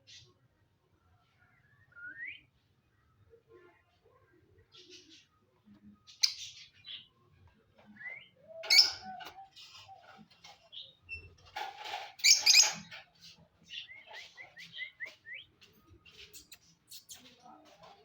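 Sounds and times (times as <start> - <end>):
parrot squawking and chirping: 8.6 - 9.8, 12.2 - 13.0.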